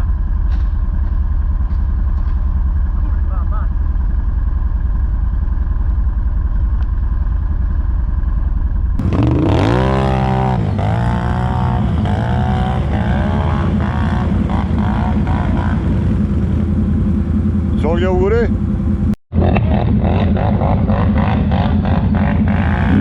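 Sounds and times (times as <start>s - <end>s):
atv engine revving: 0.0s - 23.0s.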